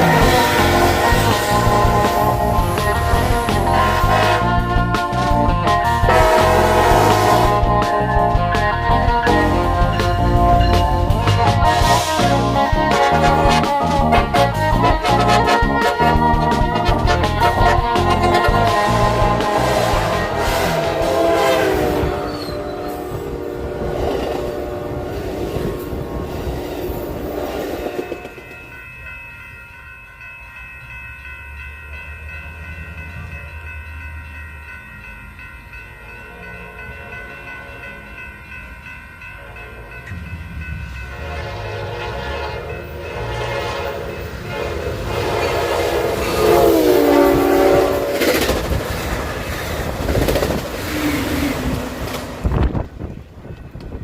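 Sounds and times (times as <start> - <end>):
train horn blasts: 0.0 - 5.1, 6.0 - 8.3, 11.4 - 26.2, 40.9 - 48.7
steady high tones: 0.0 - 21.0
train rumbling past: 0.0 - 54.0.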